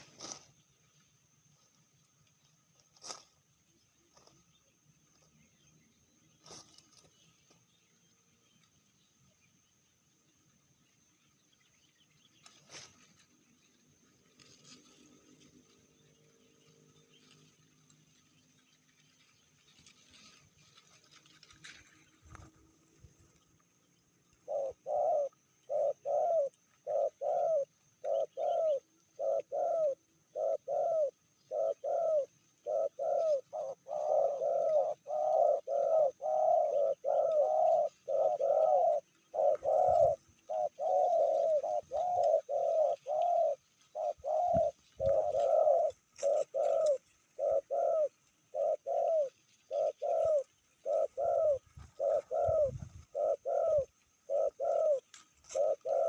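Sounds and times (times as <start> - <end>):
dove cooing: 24.4 - 56.0.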